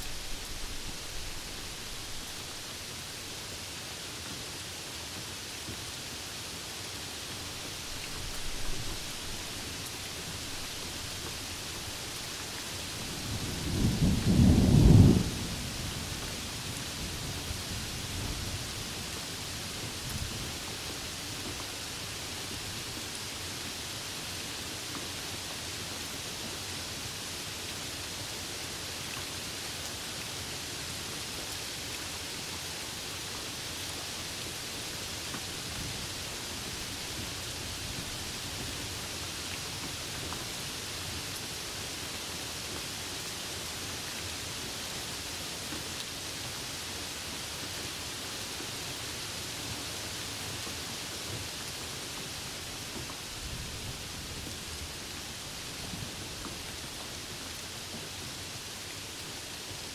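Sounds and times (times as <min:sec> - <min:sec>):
thunder rumbling: 0:00.0 - 0:02.9, 0:10.4 - 0:16.3
rain hissing: 0:00.0 - 0:59.9.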